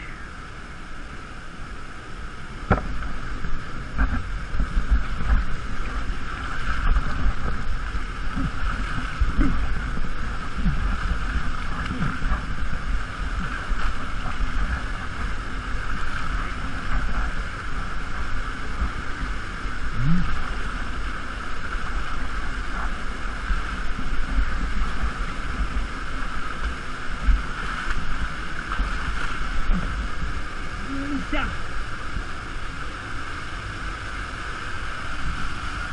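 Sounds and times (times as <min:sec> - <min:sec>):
wind buffeting microphone: 0:02.5 - 0:32.3
waterfall and stream rushing: 0:04.3 - 0:35.9.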